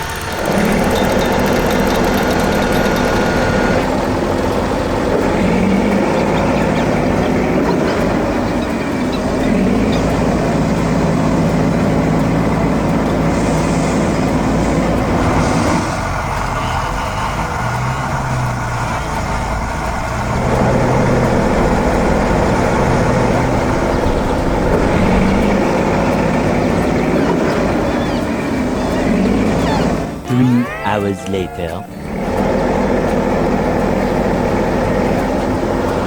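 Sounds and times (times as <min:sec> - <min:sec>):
heavy truck engine running: 0:00.0 - 0:36.0.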